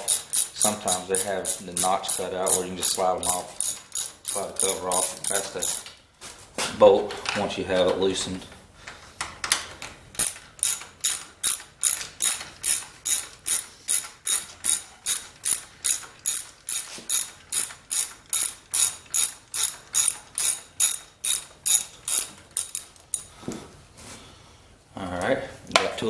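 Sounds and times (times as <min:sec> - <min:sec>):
ratchet wrench clicking: 0:00.0 - 0:05.9, 0:10.2 - 0:23.3.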